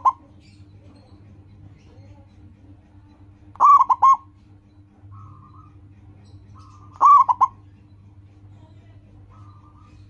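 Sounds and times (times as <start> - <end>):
dove cooing: 0.0 - 0.4, 3.6 - 4.3, 6.6 - 7.6.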